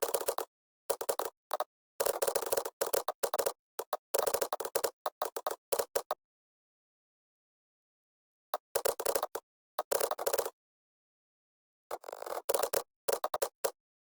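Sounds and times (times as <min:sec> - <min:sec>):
computer keyboard typing: 0:00.0 - 0:06.2, 0:08.8 - 0:10.5, 0:12.0 - 0:13.8.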